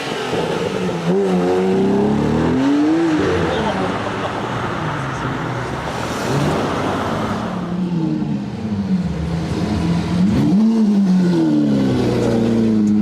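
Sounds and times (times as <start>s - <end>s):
sports car engine revving: 0.2s - 4.2s, 9.3s - 13.0s.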